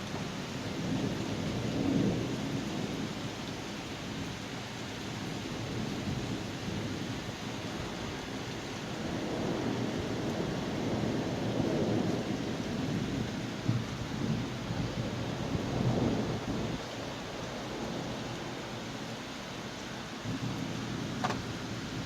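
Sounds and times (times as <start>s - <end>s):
steady rain: 0.0s - 22.0s
thunder rumbling: 8.9s - 18.8s.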